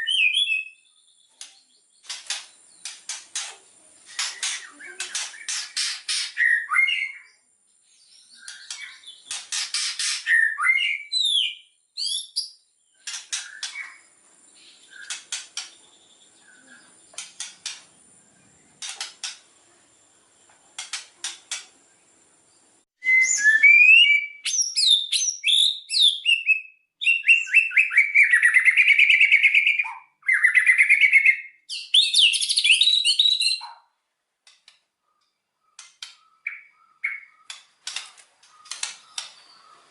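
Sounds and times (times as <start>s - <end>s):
bird whistling and trilling: 0.0s - 1.0s, 4.2s - 7.4s, 8.3s - 12.6s, 23.0s - 33.7s, 35.8s - 37.5s.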